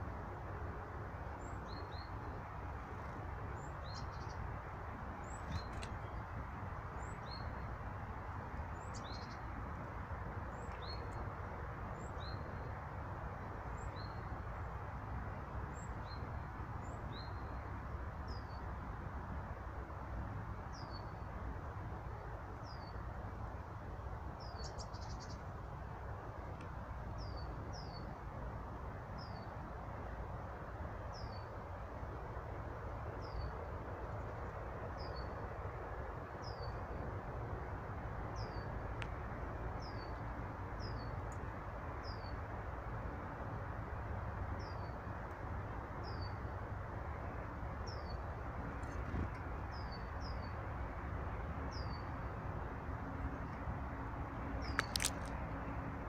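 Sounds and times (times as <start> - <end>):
faint clicks: 5.5 - 6.0, 39.0 - 39.2, 54.6 - 55.4
small birds chirping: 24.4 - 25.5, 54.6 - 55.4.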